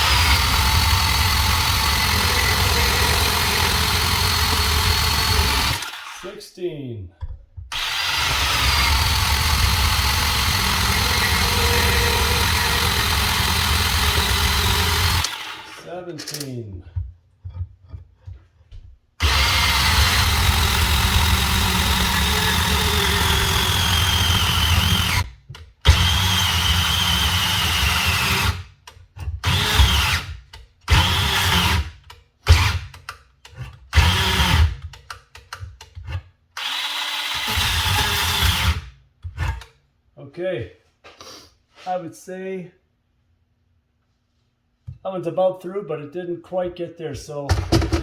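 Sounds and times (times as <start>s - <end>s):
bandsaw cutting pipe: 0.0s - 6.4s, 7.7s - 16.7s, 17.5s - 39.7s.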